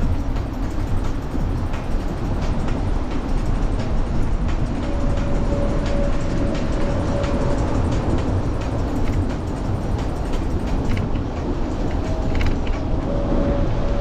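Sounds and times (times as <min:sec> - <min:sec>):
wind and rolling tyres rumble: 0:00.0 - 0:14.0
faint regular clicks: 0:06.6 - 0:12.9.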